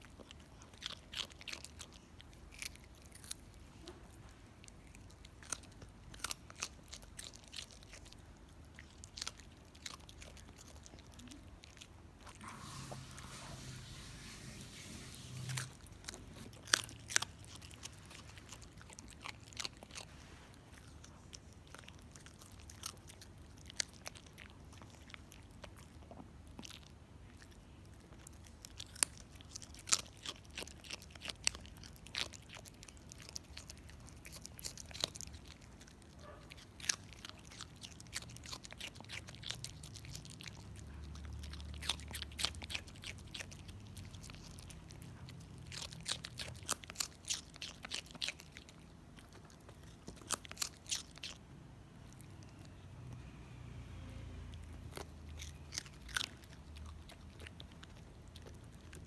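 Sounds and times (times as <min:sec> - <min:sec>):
dog crunching hard food: 0:15.5 - 0:20.1, 0:28.1 - 0:51.4, 0:54.6 - 0:59.0.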